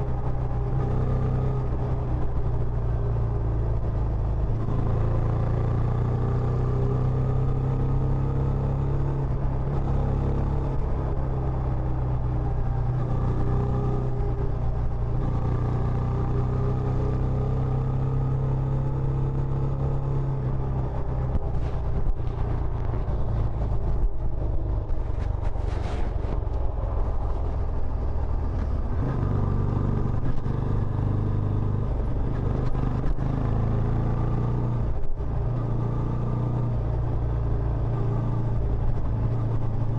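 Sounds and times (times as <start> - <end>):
motorcycle engine rumble: 0.0 - 39.9.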